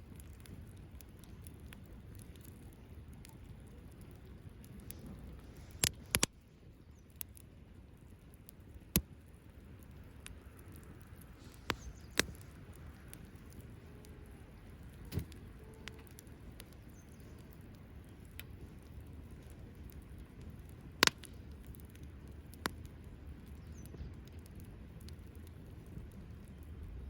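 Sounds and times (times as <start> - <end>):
wood fire crackling and popping: 0.0 - 27.0.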